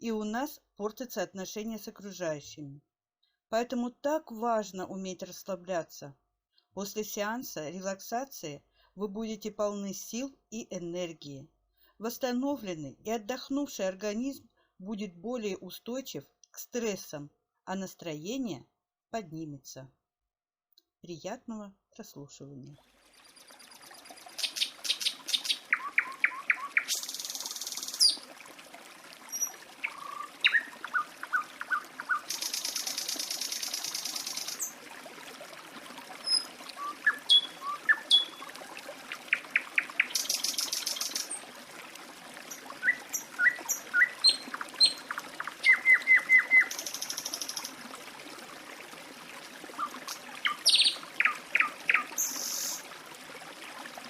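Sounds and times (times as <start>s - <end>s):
stream trickling: 22.6s - 54.0s
birds chirping: 23.2s - 28.2s, 29.3s - 34.7s, 36.3s - 38.4s, 42.5s - 47.7s, 49.8s - 52.7s.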